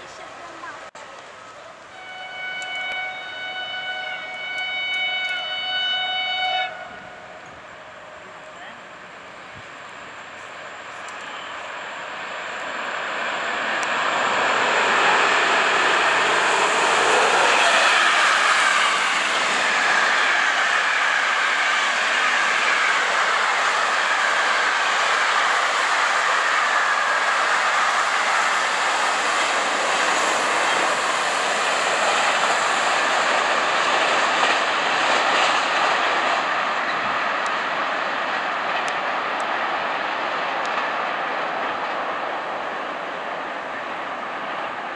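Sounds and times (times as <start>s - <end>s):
train running past: 0.0s - 44.9s
falling whine: 2.0s - 34.1s.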